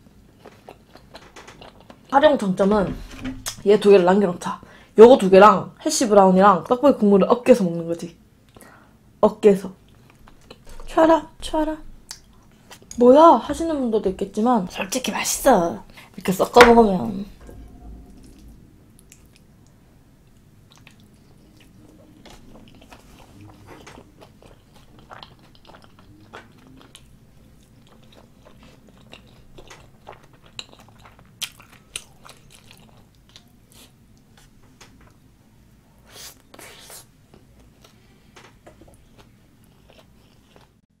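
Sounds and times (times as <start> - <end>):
close-miked chewing: 0.3 - 2.2, 20.7 - 34.5, 36.1 - 40.8.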